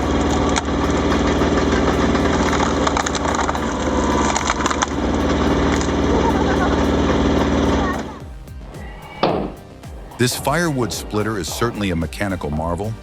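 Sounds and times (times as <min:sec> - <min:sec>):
log splitter engine drone: 0:00.0 - 0:08.2.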